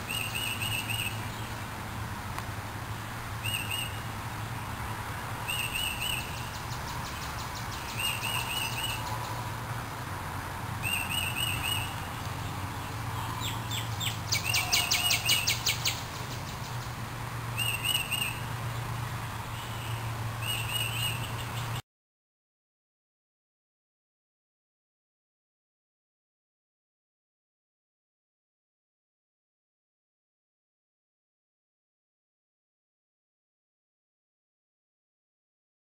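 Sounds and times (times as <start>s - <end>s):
bird chirping: 0.0s - 1.6s, 3.4s - 4.1s, 5.4s - 9.5s, 10.8s - 17.0s, 17.6s - 18.9s, 19.5s - 21.8s
fast bird trill: 13.4s - 16.8s.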